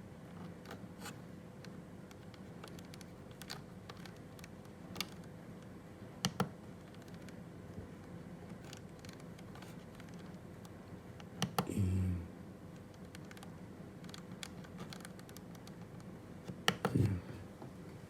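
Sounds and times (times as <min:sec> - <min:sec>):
faint steady hum: 0:00.0 - 0:18.0
computer keyboard typing: 0:02.1 - 0:05.3, 0:12.8 - 0:16.1.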